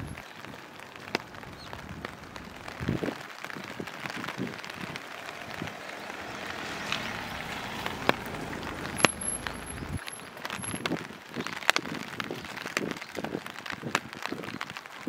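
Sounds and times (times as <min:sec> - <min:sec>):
drops tapping: 0:00.0 - 0:13.0
rain falling: 0:00.0 - 0:15.0
low rumble: 0:01.2 - 0:03.2, 0:03.8 - 0:11.2.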